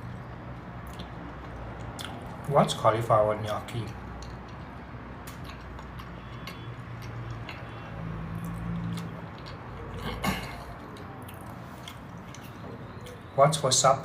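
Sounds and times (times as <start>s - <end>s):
small mouth clicks: 0.8s - 2.4s
person chewing food: 0.8s - 2.5s, 3.9s - 13.3s.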